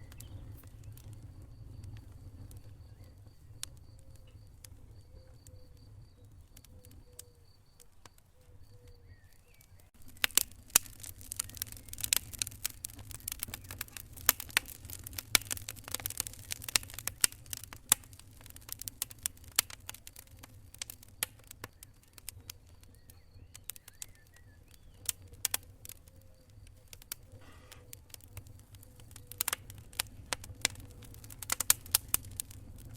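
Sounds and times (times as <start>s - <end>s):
wood fire crackling and popping: 0.0s - 32.9s.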